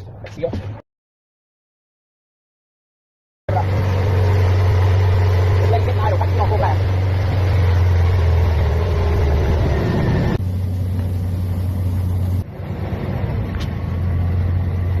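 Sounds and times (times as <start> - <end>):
engine idling: 3.5 - 15.0.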